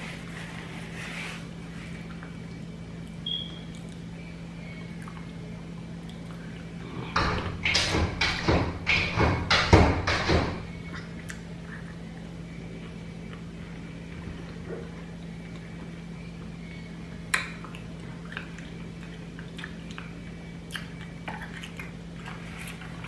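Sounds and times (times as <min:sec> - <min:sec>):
steady low hum: 0:00.0 - 0:23.0
dog knocking at a door: 0:07.2 - 0:10.7.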